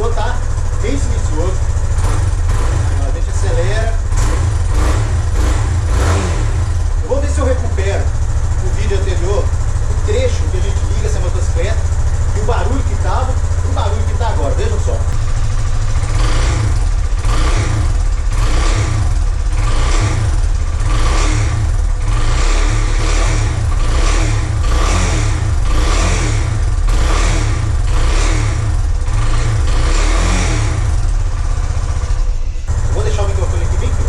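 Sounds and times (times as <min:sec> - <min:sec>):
motorcycle engine throttle blips: 0:00.0 - 0:34.0.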